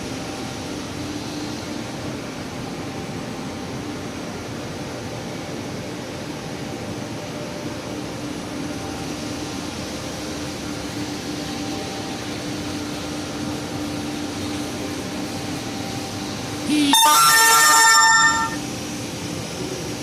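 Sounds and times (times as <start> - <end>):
machinery hum and hiss: 0.0 - 17.5
low steady tone: 17.0 - 18.6.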